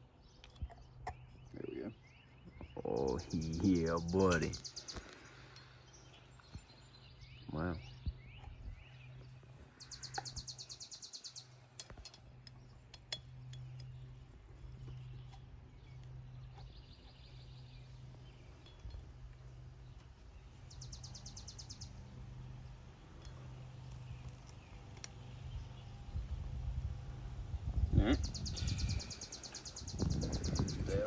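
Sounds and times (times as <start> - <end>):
steady low hum: 0.0 - 31.0
metallic clinks of tools: 18.2 - 19.4.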